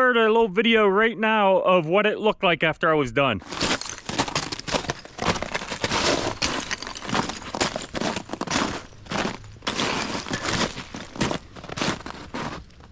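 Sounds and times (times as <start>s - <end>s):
ice crunching and cracking: 3.4s - 12.9s.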